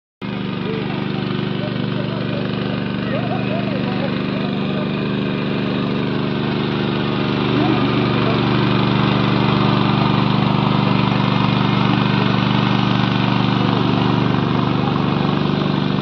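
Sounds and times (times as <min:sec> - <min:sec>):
farm engine running: 0:00.2 - 0:16.0.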